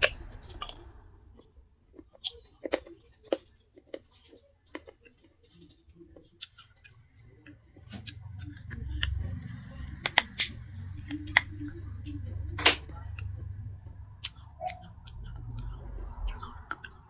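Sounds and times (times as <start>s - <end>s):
clay pieces crunching in mouth: 0.0s - 1.0s
low steady rumble: 0.0s - 2.1s, 7.0s - 17.0s.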